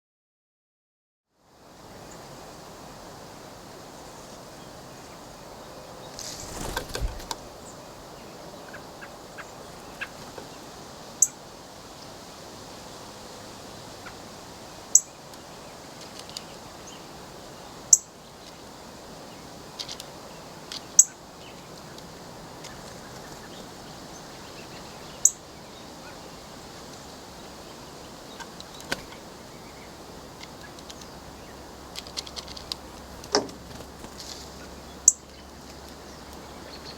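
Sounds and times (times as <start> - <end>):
steady hiss: 1.4 - 36.9.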